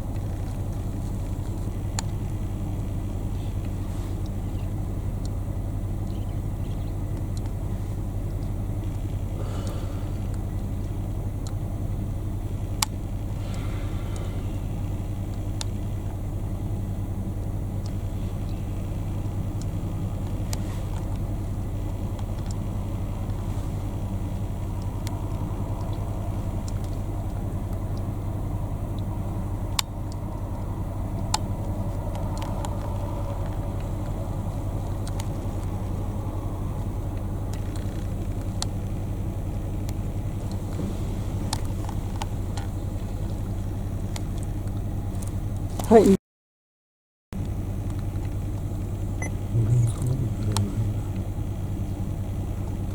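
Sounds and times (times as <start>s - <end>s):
engine humming: 0.0s - 46.2s, 47.4s - 52.9s.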